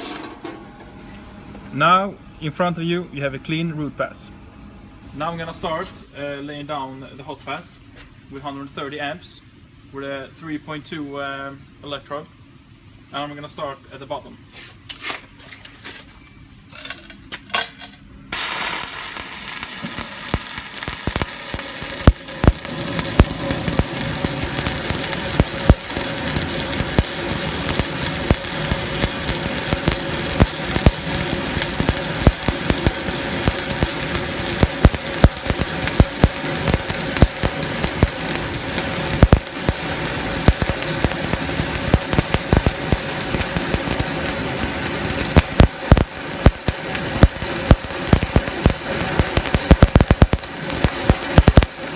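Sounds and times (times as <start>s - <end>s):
welding arc crackling with pops: 18.3s - 51.9s.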